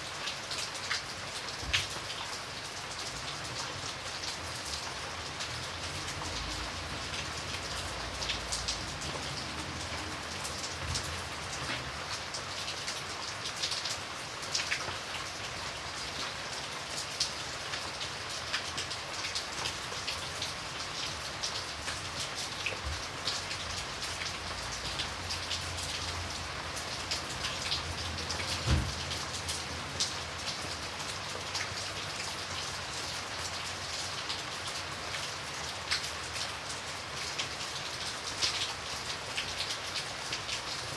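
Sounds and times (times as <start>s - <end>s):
rain drops tapping on window glass: 17.0s - 32.4s
low thump: 28.7s - 29.0s.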